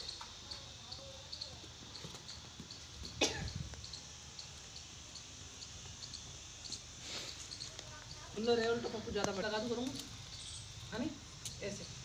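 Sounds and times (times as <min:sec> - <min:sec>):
person coughing: 0:03.2 - 0:03.6.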